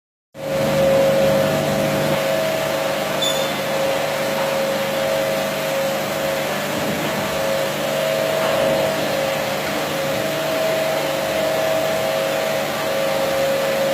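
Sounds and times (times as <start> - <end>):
carpet washing machine running: 0.4 - 13.9.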